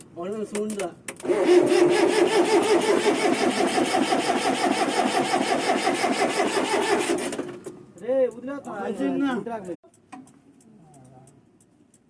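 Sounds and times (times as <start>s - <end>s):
diesel engine cranking on starter: 1.2s - 7.7s.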